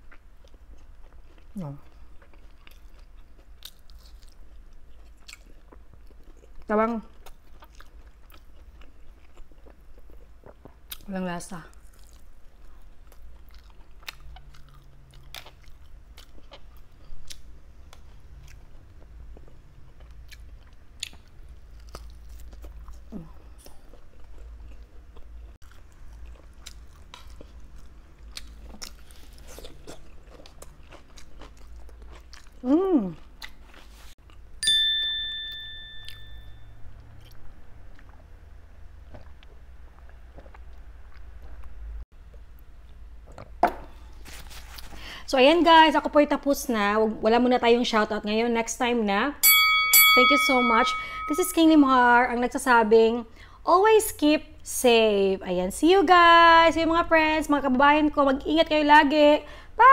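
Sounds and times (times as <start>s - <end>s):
chewing and mouth clicks: 0.0s - 11.1s, 11.7s - 34.4s, 37.0s - 38.3s, 39.1s - 43.5s
ding: 34.6s - 36.8s, 49.4s - 51.8s.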